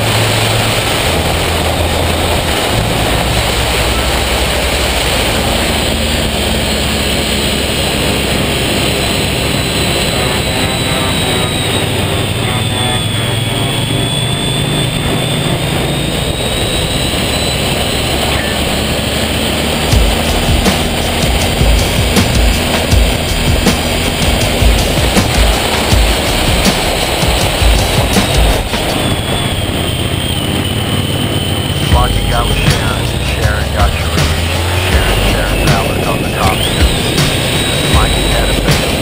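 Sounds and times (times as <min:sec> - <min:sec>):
heavy wind rush: 0:00.0 - 0:39.0
motorcycle engine running: 0:00.0 - 0:39.0.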